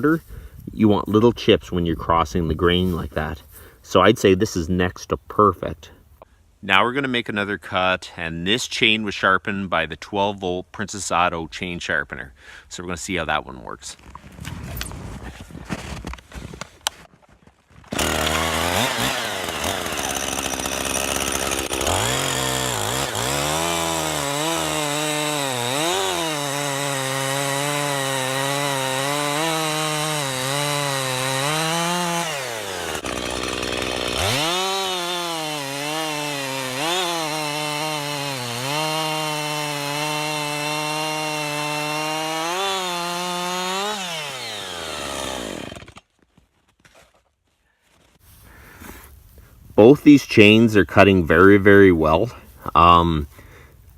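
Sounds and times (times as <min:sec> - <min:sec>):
chainsaw cutting log: 0:17.9 - 0:46.2.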